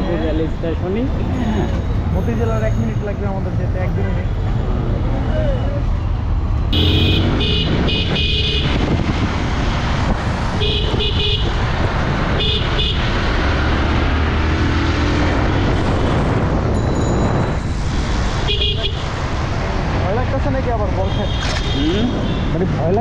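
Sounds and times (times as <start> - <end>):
motorbike riding through traffic: 0.0 - 23.0
vehicle horn beeping: 6.7 - 8.8, 10.6 - 11.6.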